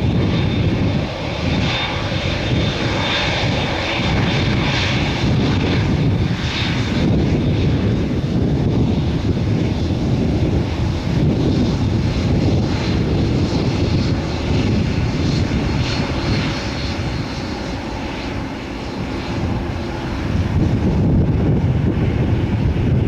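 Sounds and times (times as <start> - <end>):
jet engines at takeoff: 0.0 - 23.0.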